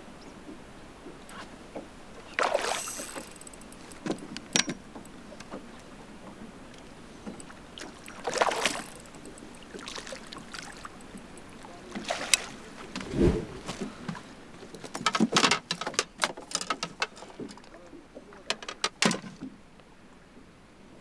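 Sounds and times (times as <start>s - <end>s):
water splashes: 1.4s - 4.2s, 6.8s - 14.4s.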